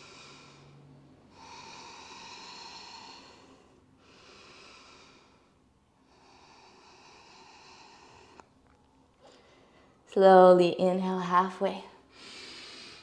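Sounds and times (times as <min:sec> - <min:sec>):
person breathing slowly: 0:00.0 - 0:08.6, 0:09.2 - 0:10.1, 0:12.1 - 0:13.0.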